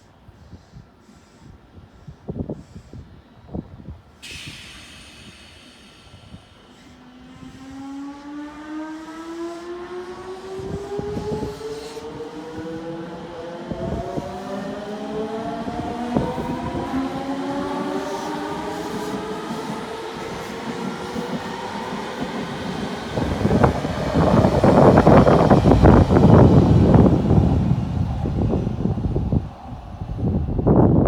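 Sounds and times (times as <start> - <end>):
air hiss: 4.2 - 7.6
electric train motors whining: 4.5 - 31.0.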